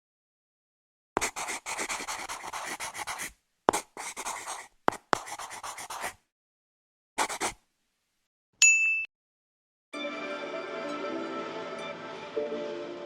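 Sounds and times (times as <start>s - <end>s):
drawing tool scratching on paper: 1.2s - 6.2s, 7.2s - 7.6s.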